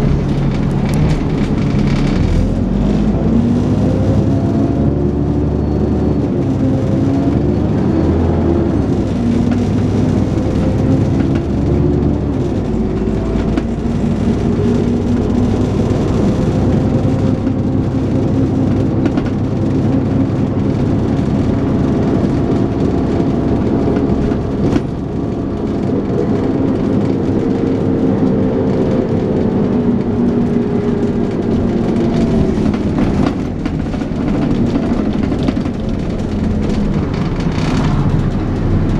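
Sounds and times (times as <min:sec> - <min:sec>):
rattles: 0:00.0 - 0:03.0, 0:20.8 - 0:38.9
bus engine pulling under load: 0:00.0 - 0:38.9
road noise: 0:00.0 - 0:38.9.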